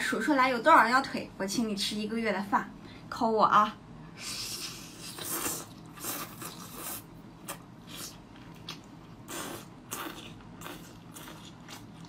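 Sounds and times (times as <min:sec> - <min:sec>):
person biting and chewing: 0:05.0 - 0:12.0.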